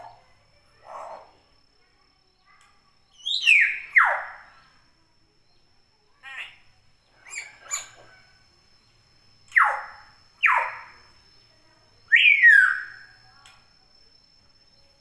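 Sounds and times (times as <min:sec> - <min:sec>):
bird chirping: 0:02.4 - 0:04.8, 0:05.4 - 0:14.9.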